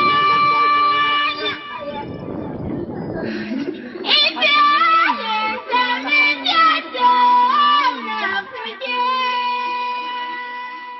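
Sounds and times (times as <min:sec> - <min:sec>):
child singing slow melody: 0:04.1 - 0:10.9.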